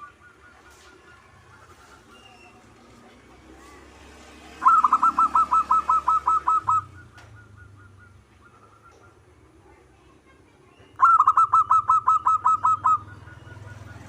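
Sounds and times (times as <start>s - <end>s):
dove cooing: 4.5s - 9.5s, 11.0s - 14.0s
faint bird calls: 4.5s - 14.0s.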